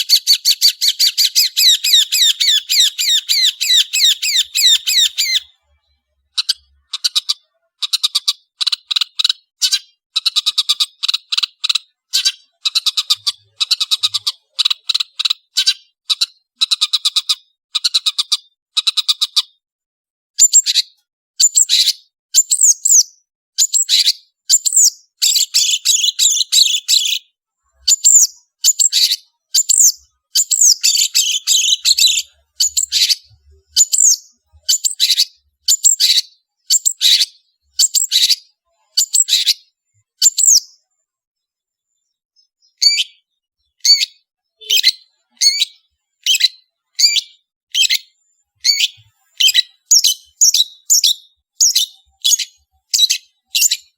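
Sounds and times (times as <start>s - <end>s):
shrike chattering song: 0.0s - 5.5s, 23.8s - 38.4s, 48.6s - 53.9s.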